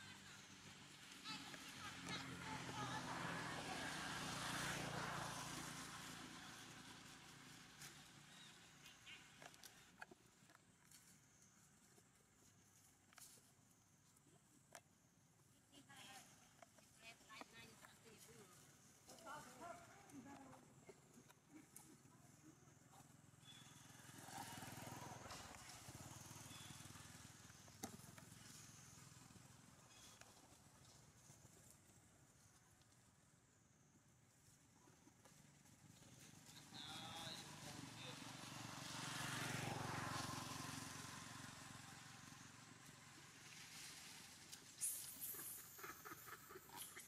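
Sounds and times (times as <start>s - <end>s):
small engine running: 0.0s - 10.0s, 22.5s - 32.6s, 35.2s - 47.0s.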